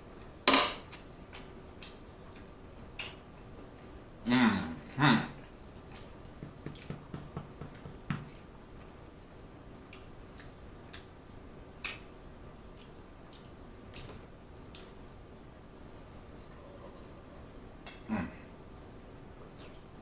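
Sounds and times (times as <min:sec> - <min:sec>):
wet mouth clicks while chewing: 0:05.7 - 0:07.0, 0:09.9 - 0:11.1, 0:11.8 - 0:12.1.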